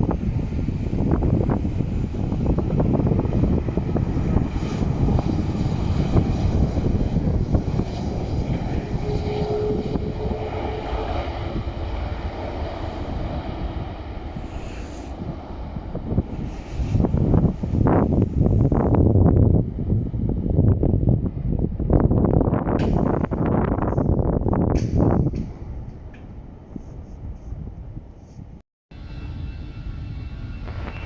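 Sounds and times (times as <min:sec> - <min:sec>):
airliner engines running: 0:00.0 - 0:31.0
wind buffeting microphone: 0:00.0 - 0:31.0
faint whine: 0:29.0 - 0:31.0.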